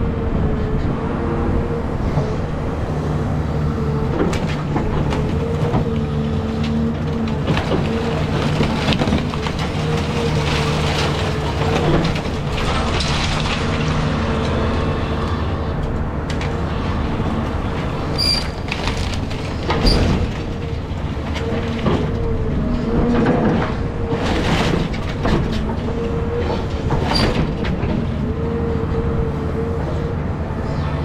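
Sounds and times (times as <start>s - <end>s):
excavator engine whining: 0.0s - 31.0s
demolition debris crunching: 0.6s - 31.0s
high metallic squeaks: 18.1s - 18.6s.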